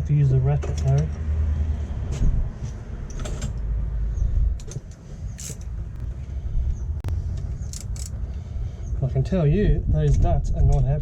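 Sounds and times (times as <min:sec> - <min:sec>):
steady low rumble: 0:01.6 - 0:11.0
socket ratchet clicking: 0:05.4 - 0:05.8, 0:07.6 - 0:08.2.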